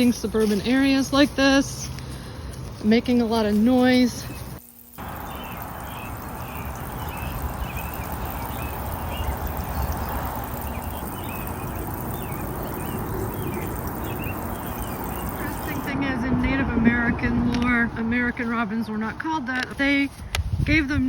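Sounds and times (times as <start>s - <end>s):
robins chirping: 3.5s - 16.1s.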